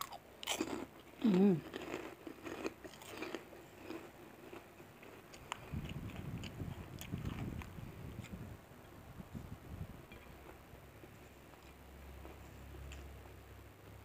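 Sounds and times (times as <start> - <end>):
crisp food crunching: 0.0 - 8.4
person chewing food: 0.0 - 8.4, 10.1 - 13.3.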